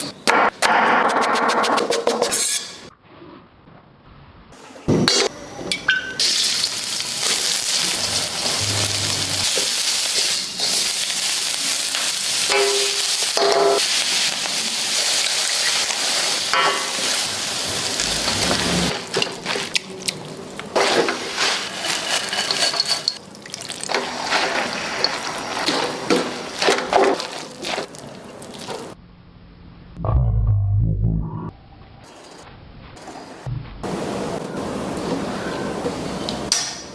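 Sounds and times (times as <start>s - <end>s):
food sizzling on a hot pan: 6.2s - 18.9s
utensils clattering: 20.8s - 23.2s.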